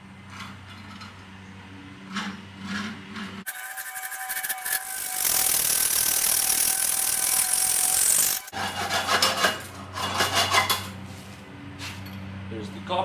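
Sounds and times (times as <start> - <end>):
hacksaw sawing through wire: 2.1 - 10.9.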